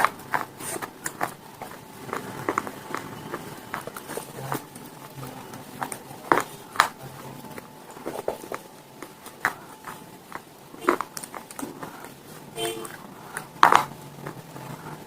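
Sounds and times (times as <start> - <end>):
crunching and chewing: 0.0 - 15.0.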